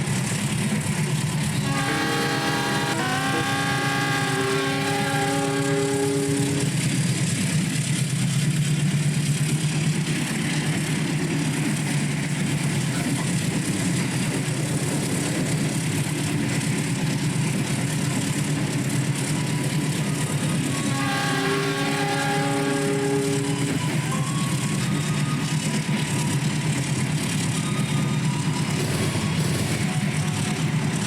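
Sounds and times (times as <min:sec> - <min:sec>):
train rolling rumble: 0:00.0 - 0:31.0.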